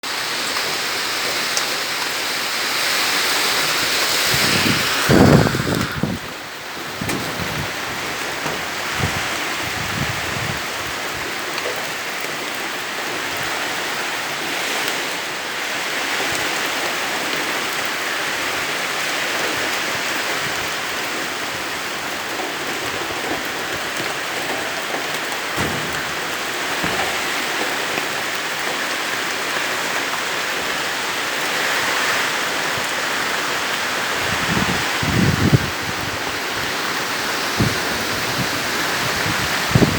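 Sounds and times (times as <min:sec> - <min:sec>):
heavy rain falling: 0:00.0 - 0:39.9
wind buffeting microphone: 0:03.8 - 0:11.4, 0:20.2 - 0:28.7, 0:33.9 - 0:39.9.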